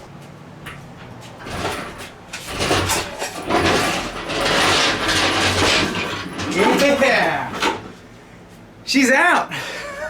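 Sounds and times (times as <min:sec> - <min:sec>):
shop jack rolling and scraping: 0:01.2 - 0:08.0.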